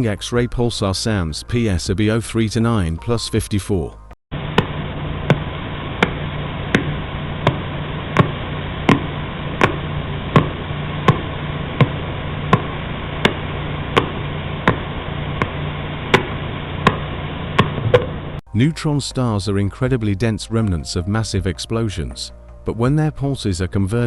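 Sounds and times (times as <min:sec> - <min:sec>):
steady hiss: 0:04.4 - 0:18.4.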